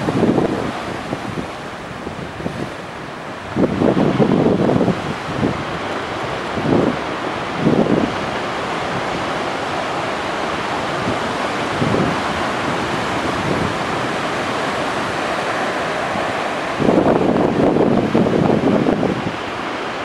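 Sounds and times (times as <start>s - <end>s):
ocean surf washing onto shore: 0.0s - 20.0s
wind buffeting microphone: 0.0s - 20.0s.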